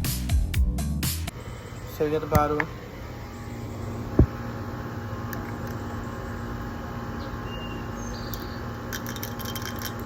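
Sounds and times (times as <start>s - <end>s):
steady low hum: 1.2s - 10.0s
dull thump: 4.2s - 4.4s.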